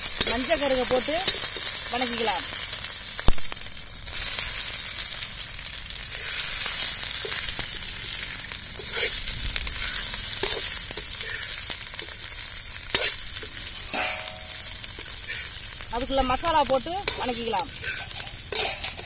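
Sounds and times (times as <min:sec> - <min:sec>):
hot oil sizzling: 0:00.0 - 0:19.0
metal spatula scraping pan: 0:00.1 - 0:02.2, 0:06.1 - 0:12.2, 0:12.8 - 0:15.6, 0:16.2 - 0:19.0.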